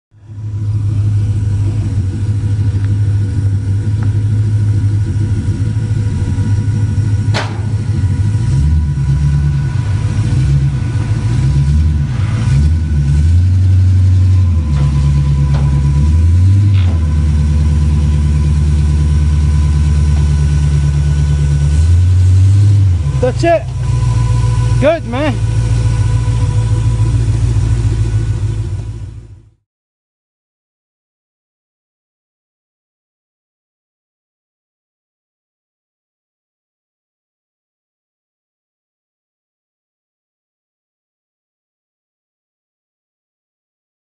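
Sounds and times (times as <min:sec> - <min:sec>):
car engine revving: 0:00.2 - 0:29.6.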